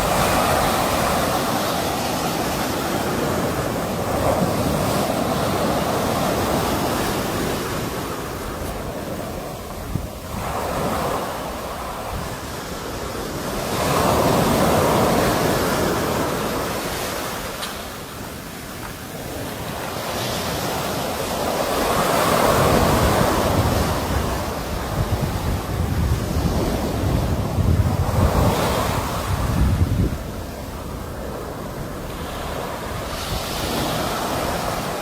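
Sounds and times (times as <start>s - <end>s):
wind buffeting microphone: 0.0s - 18.0s, 20.6s - 35.0s
sea waves breaking: 0.0s - 35.0s.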